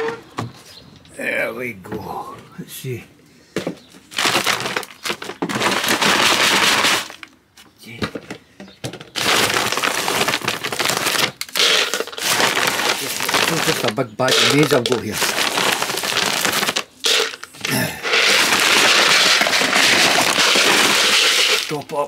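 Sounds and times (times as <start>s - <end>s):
feed sack crinkling: 4.1s - 7.3s, 9.0s - 22.0s.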